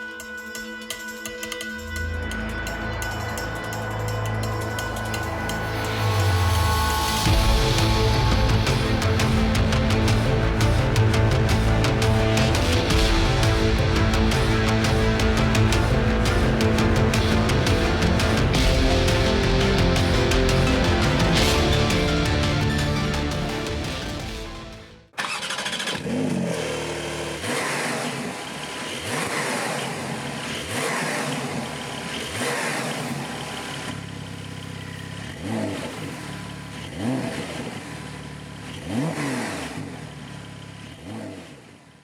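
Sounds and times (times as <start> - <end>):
background music: 0.0 - 25.4
car engine revving: 1.5 - 42.0.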